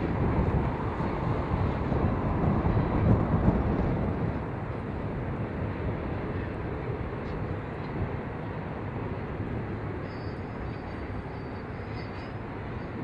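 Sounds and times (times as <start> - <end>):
train wheels clattering on rail: 0.0 - 13.0
faint high ringing: 10.0 - 13.0.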